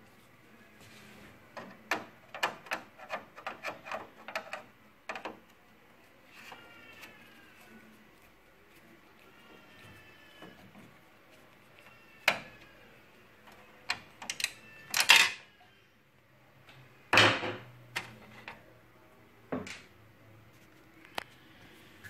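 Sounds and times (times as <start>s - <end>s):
printer parts rattling: 1.5s - 5.5s
printer parts clicking and knocking: 1.5s - 5.6s.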